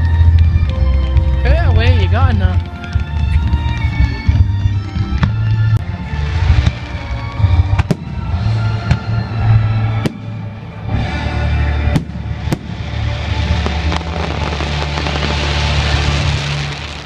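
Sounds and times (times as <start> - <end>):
fireworks crackling pops: 0.0 - 9.3, 10.0 - 10.6, 11.9 - 17.0
music over loudspeakers: 0.0 - 17.0
fireworks bangs: 1.2 - 11.1, 11.8 - 17.0.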